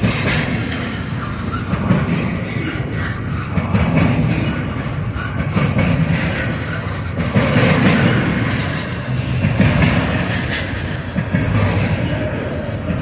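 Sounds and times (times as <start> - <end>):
steel wheels rumbling on rail: 0.0 - 13.0.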